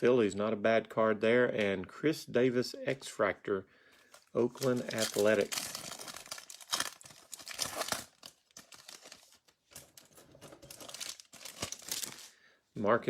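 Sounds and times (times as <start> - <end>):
wrapper crinkling and tearing: 4.1 - 12.4.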